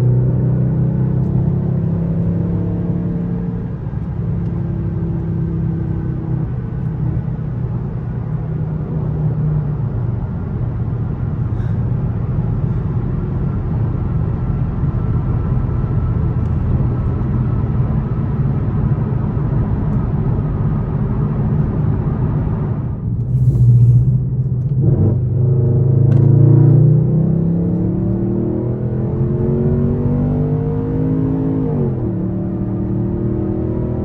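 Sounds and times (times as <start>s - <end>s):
car exhaust droning and revving: 0.0s - 34.0s
road noise: 0.0s - 34.0s.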